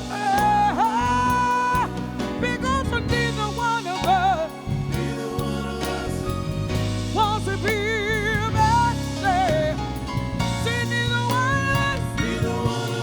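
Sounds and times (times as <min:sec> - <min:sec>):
person singing with vibrato: 0:00.0 - 0:09.8
soul band playing live: 0:00.0 - 0:13.0.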